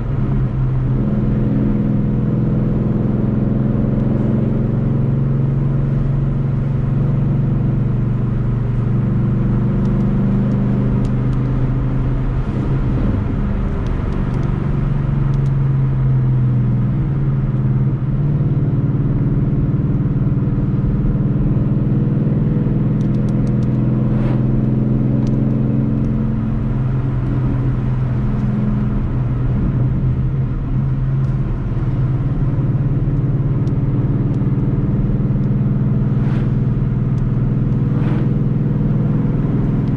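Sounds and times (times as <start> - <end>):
car engine cruising: 0.0 - 39.9.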